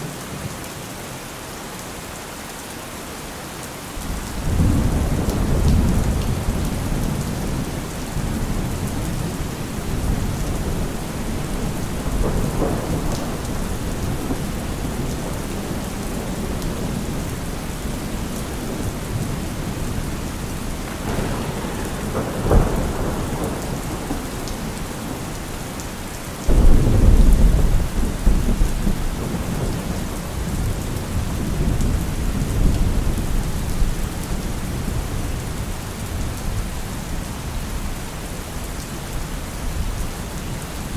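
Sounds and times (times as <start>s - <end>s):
heavy rain falling: 0.0s - 40.9s
loud thunderclap: 4.0s - 33.9s
thunder rumbling: 4.0s - 37.2s.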